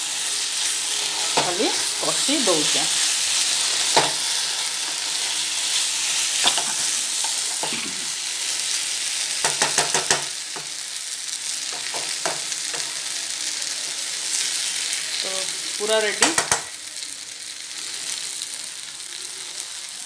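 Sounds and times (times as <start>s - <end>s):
chicken sizzling in a pan: 0.0s - 20.0s
wooden spatula scraping a pan: 3.1s - 8.0s
spatula knocking against pan: 9.4s - 10.7s, 16.2s - 16.7s.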